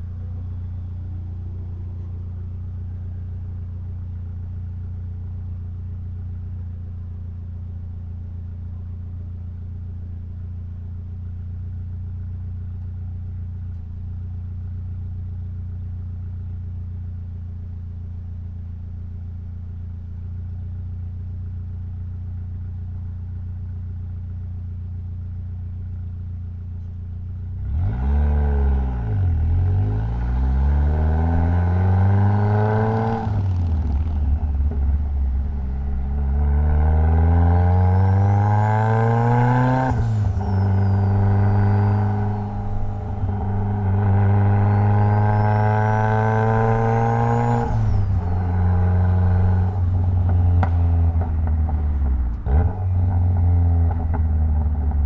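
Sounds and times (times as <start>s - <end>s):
car engine revving: 27.6s - 55.0s
turbo whine: 31.4s - 53.1s.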